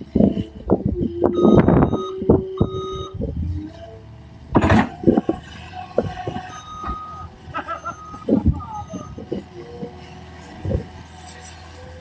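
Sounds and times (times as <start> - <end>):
reversing alarm beeping: 1.0 - 3.3, 6.3 - 9.3
loud knocks and clatter: 4.5 - 7.0.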